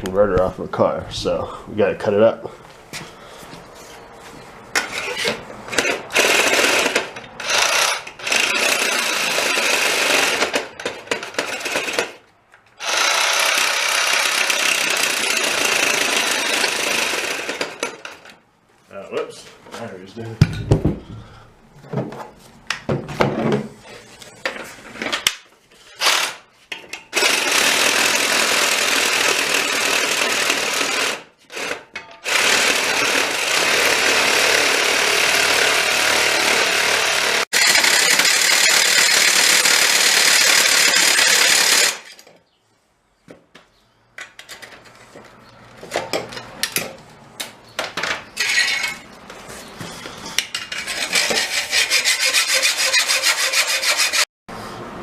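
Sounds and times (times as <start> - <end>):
reciprocating saw cutting metal: 27.2 - 42.2, 50.7 - 54.3.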